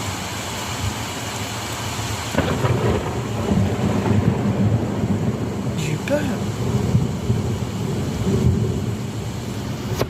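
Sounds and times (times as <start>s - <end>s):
heavy rain: 0.0s - 10.0s
thunder crack and rumble: 2.3s - 10.0s.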